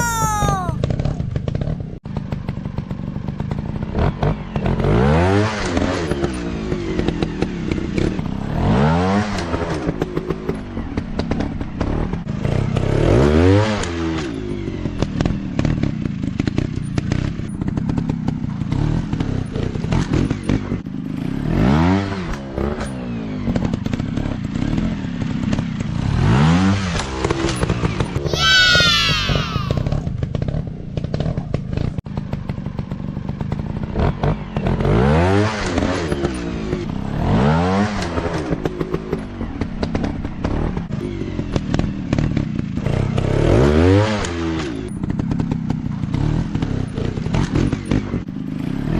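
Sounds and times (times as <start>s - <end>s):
dirt bike engines revving: 28.3s - 30.0s.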